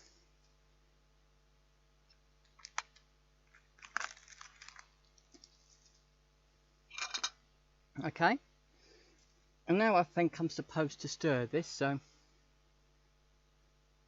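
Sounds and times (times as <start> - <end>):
plastic film crinkling: 3.8 - 6.0.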